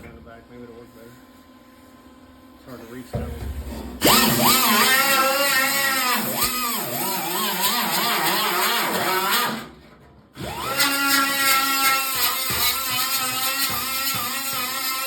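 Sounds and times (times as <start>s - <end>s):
rotary power tool on sheet metal: 4.0s - 9.8s, 10.4s - 15.0s.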